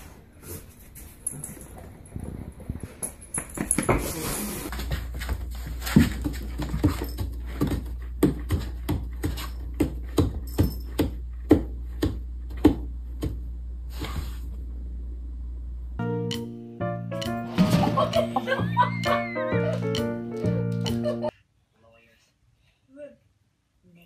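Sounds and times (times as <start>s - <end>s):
steady low hum: 4.7s - 16.1s.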